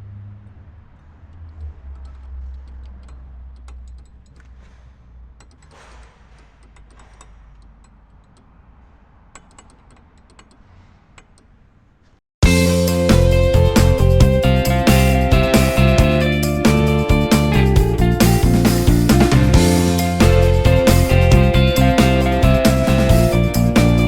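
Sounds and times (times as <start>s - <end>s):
low rumble of car rolling: 0.0s - 24.0s
wheel clicking and rattling: 0.3s - 11.8s.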